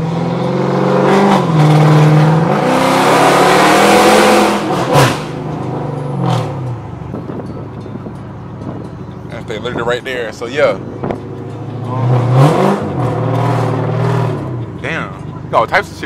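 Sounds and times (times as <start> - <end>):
car engine accelerating hard: 0.0 - 7.4, 10.8 - 15.4.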